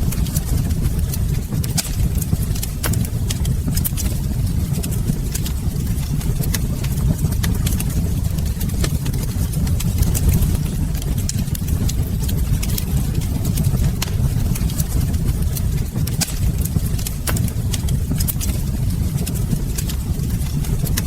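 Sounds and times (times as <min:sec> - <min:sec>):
low rumble: 0:00.0 - 0:21.0
wood fire crackling: 0:00.0 - 0:21.0.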